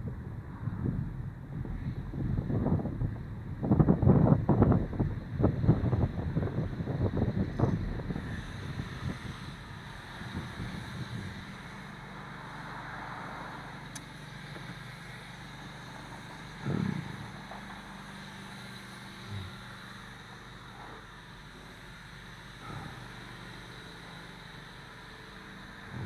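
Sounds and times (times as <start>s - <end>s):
low thump: 16.6s - 17.3s.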